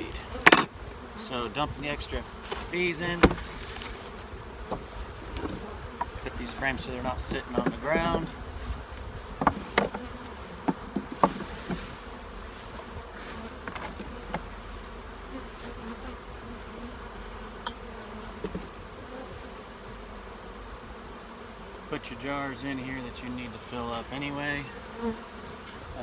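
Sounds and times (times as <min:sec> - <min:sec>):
bees buzzing: 0:00.0 - 0:26.0
sharp knocks: 0:03.2 - 0:03.5.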